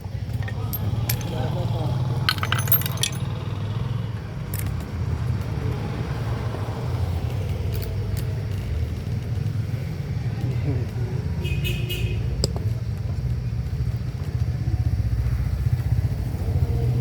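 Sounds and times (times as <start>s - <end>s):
metallic tool clinks: 0.4s - 1.5s, 2.3s - 3.4s.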